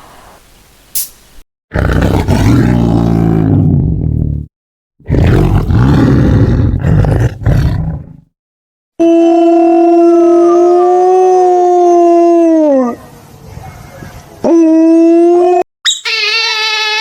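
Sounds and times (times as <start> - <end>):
large animal roaring: 1.7 - 8.3.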